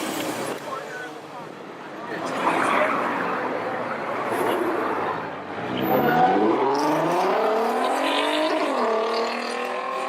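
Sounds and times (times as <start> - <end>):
car engine accelerating hard: 5.8 - 10.0.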